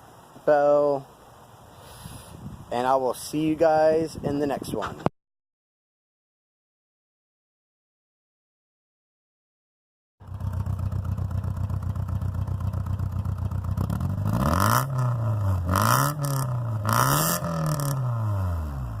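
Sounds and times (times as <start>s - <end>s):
car engine idling and revving: 10.2s - 19.0s.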